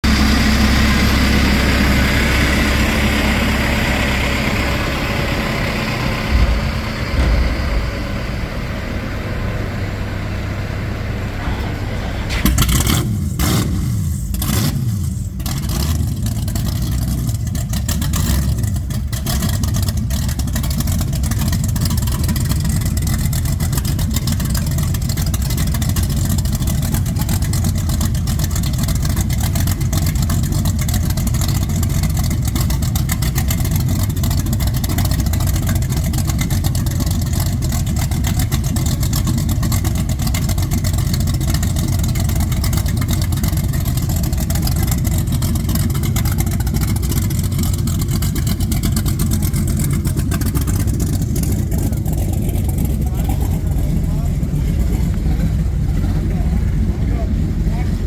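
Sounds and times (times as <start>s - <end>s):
engine low rumble: 0.0s - 58.0s
sharp crackles and knocks: 6.3s - 8.6s.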